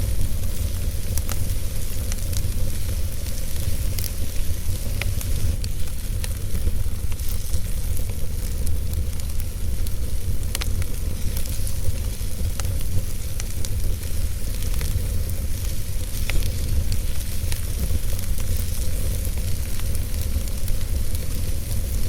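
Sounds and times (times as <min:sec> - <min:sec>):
fire rumble and hiss: 0:00.0 - 0:22.0.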